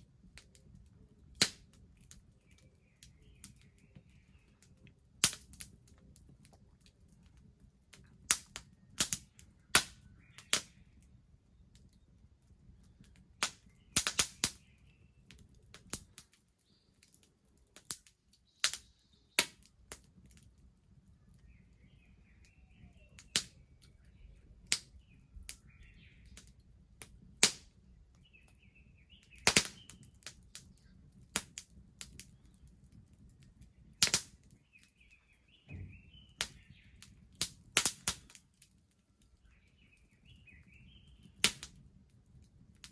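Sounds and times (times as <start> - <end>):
bonfire crackling: 0.0 - 42.9
sharp fire pops: 1.3 - 2.2, 5.2 - 6.8, 8.0 - 10.8, 13.0 - 14.8, 17.8 - 20.5, 21.5 - 24.0, 24.6 - 38.6, 39.4 - 41.8.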